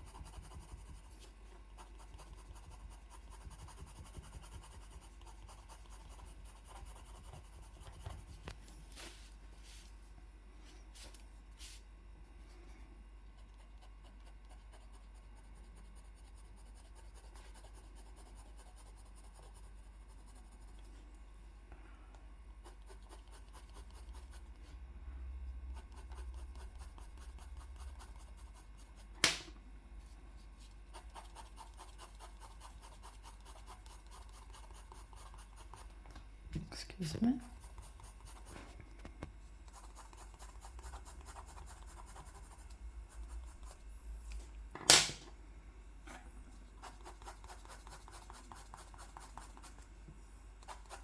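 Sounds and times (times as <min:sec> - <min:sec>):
pencil scratching on paper: 0:00.0 - 0:08.4, 0:13.4 - 0:21.0, 0:22.6 - 0:24.7, 0:25.7 - 0:29.2, 0:30.4 - 0:36.0, 0:37.4 - 0:38.7, 0:39.7 - 0:43.8, 0:46.8 - 0:49.8, 0:50.6 - 0:51.0
steady low hum: 0:00.0 - 0:51.0
sharp click: 0:29.2 - 0:29.5.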